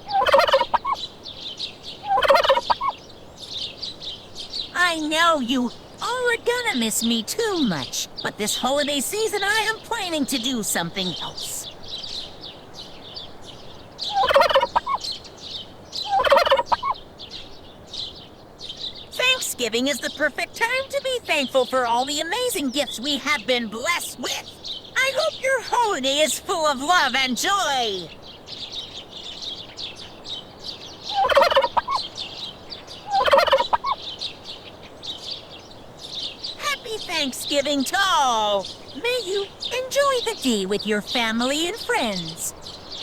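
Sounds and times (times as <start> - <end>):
turkey gobbling: 0.0 - 1.0, 2.0 - 3.0, 14.0 - 15.0, 16.0 - 17.0, 31.1 - 32.1, 32.8 - 34.1
small birds chirping: 0.0 - 43.0.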